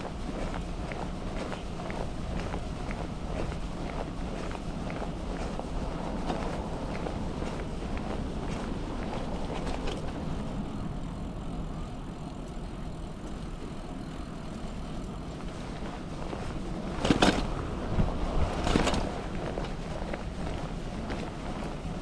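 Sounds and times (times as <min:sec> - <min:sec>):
rain pants crunching: 0:00.0 - 0:10.5
bicycle riding rumble: 0:00.0 - 0:22.0.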